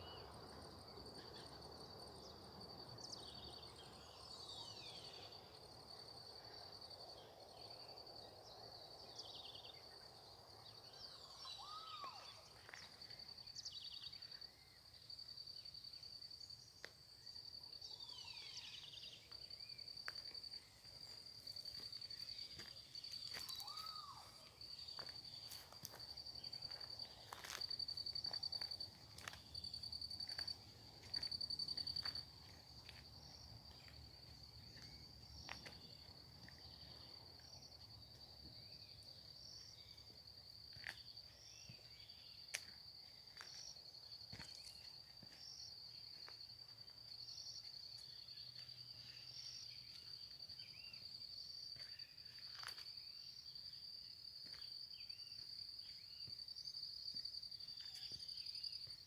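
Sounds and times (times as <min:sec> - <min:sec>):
faint bird chirps: 0:03.1 - 0:05.5, 0:10.8 - 0:15.7, 0:16.8 - 0:19.9, 0:22.2 - 0:25.7.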